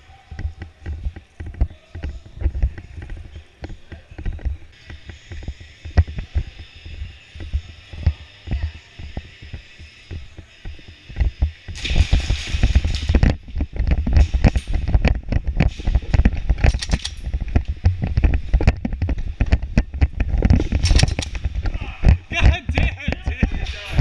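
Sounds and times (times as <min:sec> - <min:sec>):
thumps and knocks of movement: 0:00.3 - 0:24.0
sharp clicks: 0:16.1 - 0:21.5.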